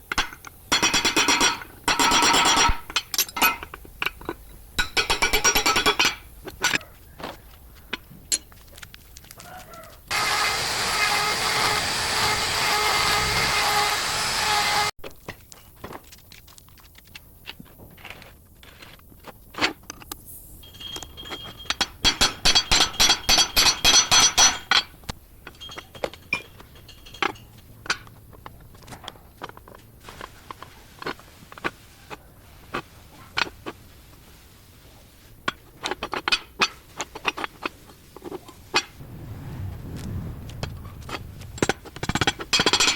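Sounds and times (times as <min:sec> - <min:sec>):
metal clinks and knocks: 0:00.0 - 0:06.9, 0:07.9 - 0:08.8, 0:20.6 - 0:29.9, 0:41.1 - 0:42.9
rapid ringing metal strikes: 0:20.6 - 0:25.0.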